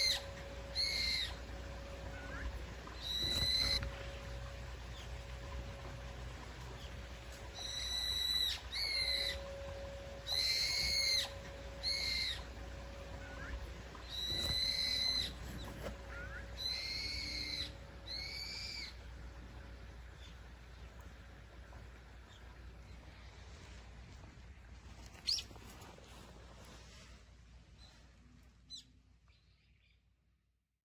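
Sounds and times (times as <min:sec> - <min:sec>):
bird whistling calls: 0:00.0 - 0:04.0, 0:07.5 - 0:19.0
faint steady hum: 0:00.0 - 0:30.7.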